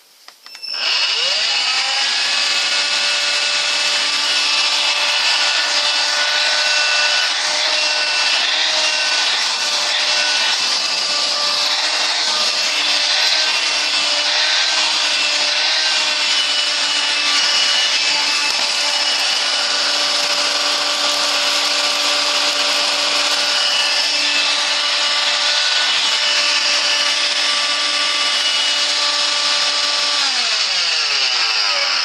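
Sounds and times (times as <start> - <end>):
vacuum motor whine: 15.9 - 25.4.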